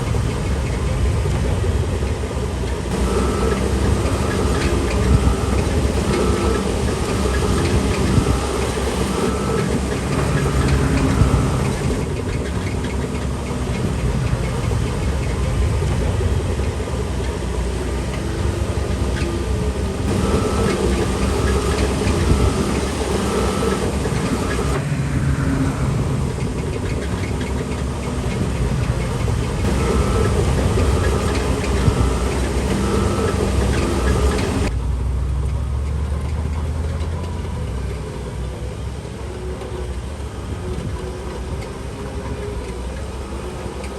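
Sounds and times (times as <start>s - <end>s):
rattle of tracks and stone: 0.0s - 34.8s
bulldozer diesel engine: 0.0s - 43.9s.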